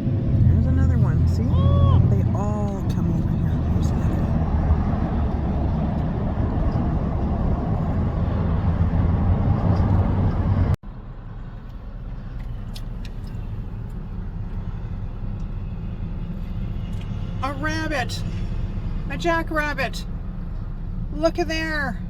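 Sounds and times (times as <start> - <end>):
car engine low rumble: 0.0 - 22.0.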